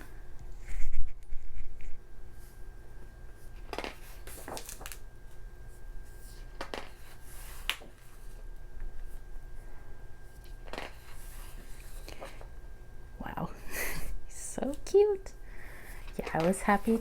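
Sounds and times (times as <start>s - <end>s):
magazine pages turning: 3.5s - 5.3s, 6.1s - 8.4s, 10.4s - 12.5s, 16.0s - 17.0s.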